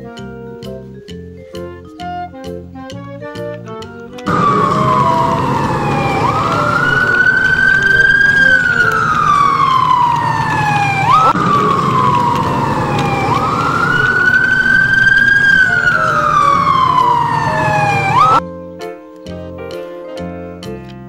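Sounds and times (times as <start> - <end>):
emergency vehicle siren wailing: 4.3 - 18.4.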